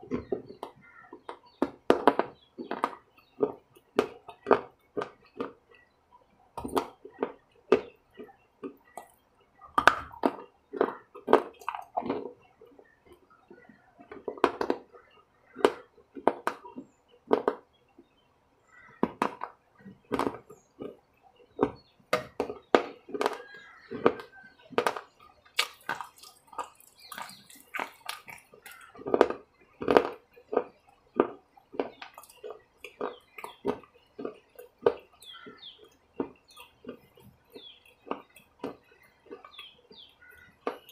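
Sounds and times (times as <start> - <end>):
wet chewing with lip smacking: 6.5 - 14.4, 22.5 - 40.9.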